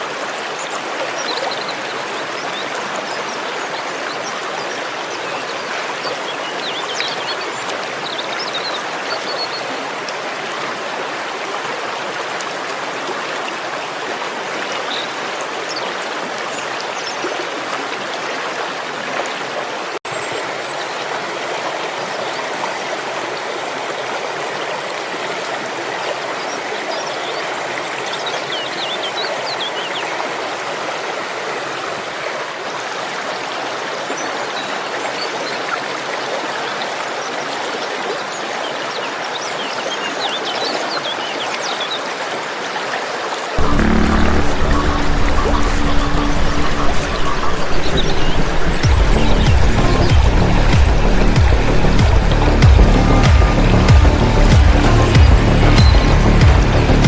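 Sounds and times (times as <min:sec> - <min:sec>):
stream rushing: 0:00.0 - 0:57.0
birds chirping: 0:43.6 - 0:57.0.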